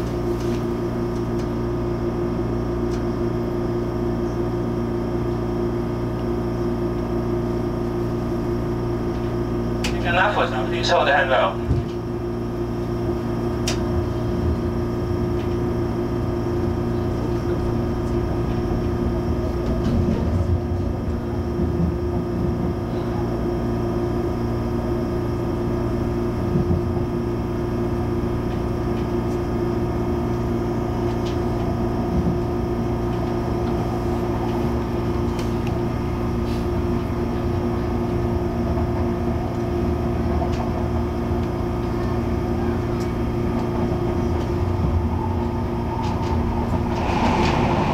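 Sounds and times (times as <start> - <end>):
train carriage electrical hum: 0.0 - 47.9.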